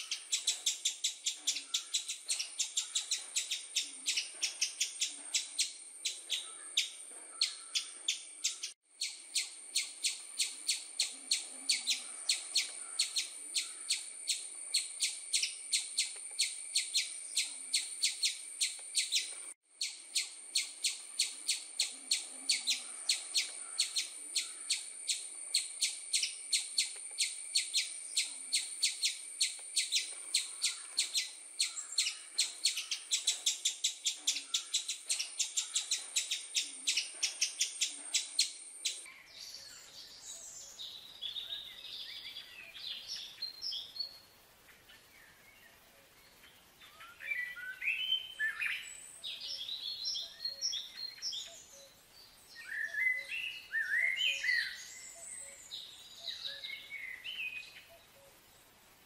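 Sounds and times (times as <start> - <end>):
bird chirping rapidly: 0.0 - 39.1
soft bird calls: 0.0 - 59.0.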